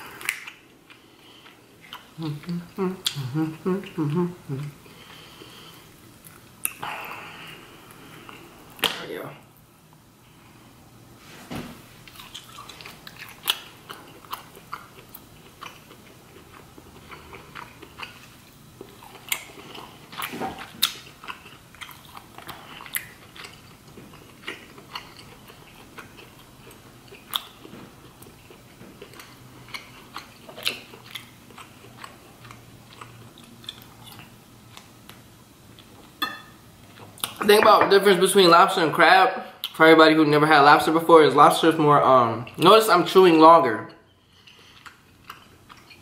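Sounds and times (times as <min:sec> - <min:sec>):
chewing with mouth clicks: 0:00.0 - 0:08.8, 0:12.0 - 0:36.2, 0:44.2 - 0:46.0.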